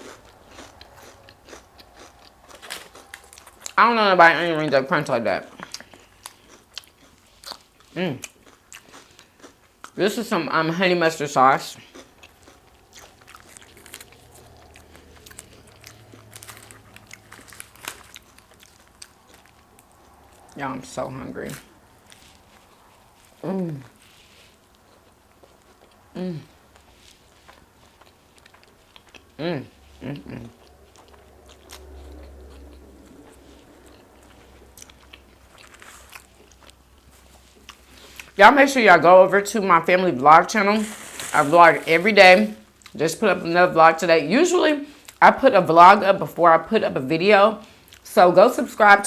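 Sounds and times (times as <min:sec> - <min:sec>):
person chewing crunchy food: 0:00.0 - 0:03.8, 0:05.4 - 0:10.0, 0:11.6 - 0:20.6, 0:21.4 - 0:38.4, 0:40.5 - 0:43.0.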